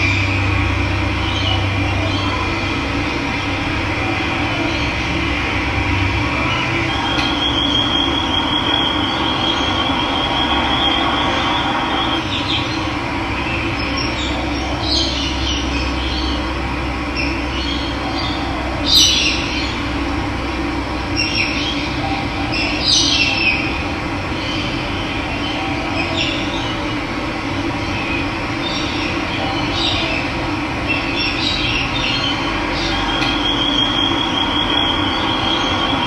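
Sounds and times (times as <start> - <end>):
high steady trill: 0.0 - 16.4
birds chirping: 0.0 - 20.1, 21.0 - 36.0.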